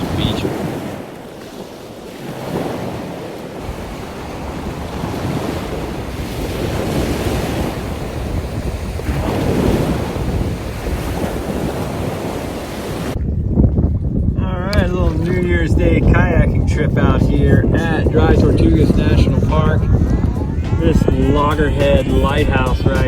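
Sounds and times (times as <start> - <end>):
waves washing on a beach: 0.0 - 13.2
wind buffeting the microphone: 0.0 - 23.0.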